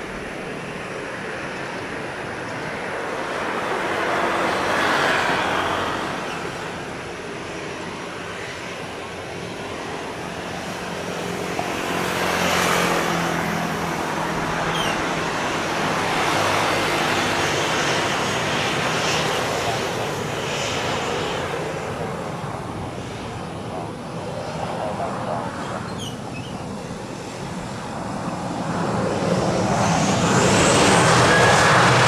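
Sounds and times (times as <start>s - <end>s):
jet engines rumbling on takeoff: 0.0s - 32.0s.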